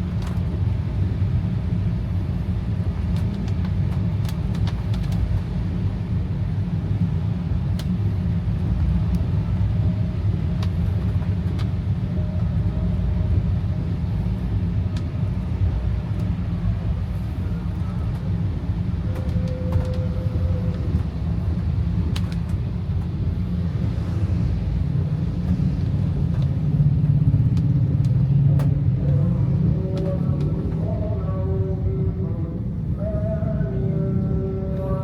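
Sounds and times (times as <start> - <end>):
car cabin driving rumble: 0.0 - 35.0.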